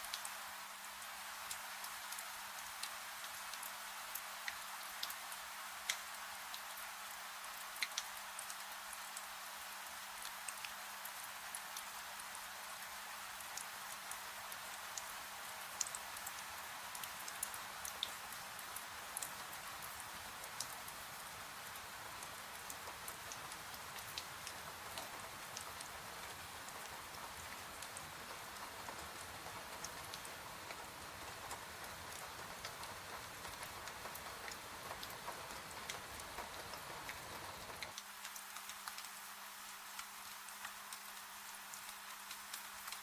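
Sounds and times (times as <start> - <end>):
rain hiss: 0.0 - 43.0
faint steady hum: 17.5 - 37.9
wood fire crackling: 22.3 - 37.9.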